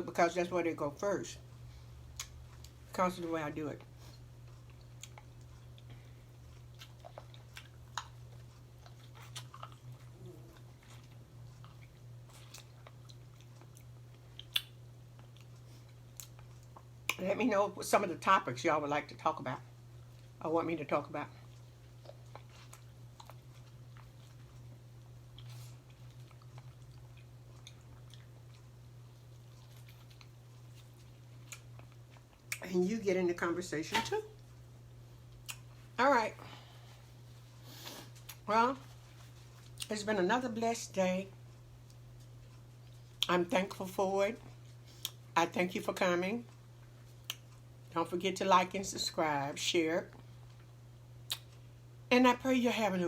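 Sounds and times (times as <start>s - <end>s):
steady low hum: 0.0s - 53.0s
person chewing food: 1.5s - 2.9s, 3.8s - 17.2s, 19.7s - 20.4s, 21.3s - 32.6s, 34.4s - 36.0s, 36.6s - 39.9s, 41.3s - 43.3s, 44.4s - 45.4s, 46.5s - 47.9s, 50.1s - 51.9s.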